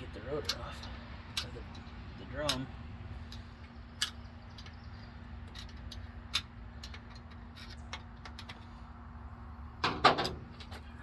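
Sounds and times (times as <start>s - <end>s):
tools and metal parts clinking: 5.4s - 8.7s.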